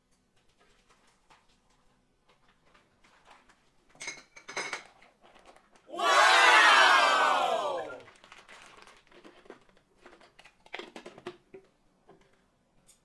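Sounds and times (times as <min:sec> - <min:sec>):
plastic packet crinkling: 0:08.1 - 0:11.2.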